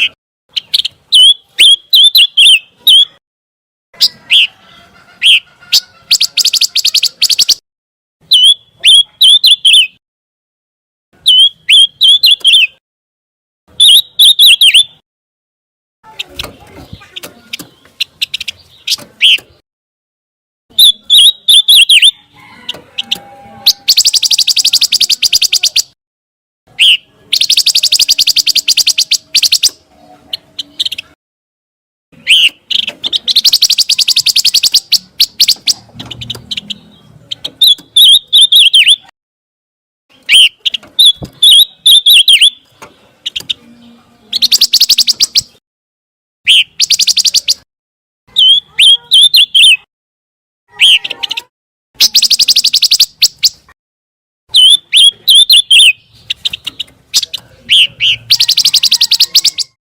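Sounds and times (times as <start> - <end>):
bird whistled notes: 13.8 - 15.0, 20.7 - 22.2, 23.0 - 25.9, 26.8 - 29.8, 32.2 - 35.8, 37.6 - 39.1, 40.3 - 42.6, 52.0 - 53.6, 54.5 - 56.0
songbird buzzy trills: 22.7 - 26.0, 26.7 - 31.0, 32.2 - 39.1, 40.2 - 45.6, 52.0 - 53.7.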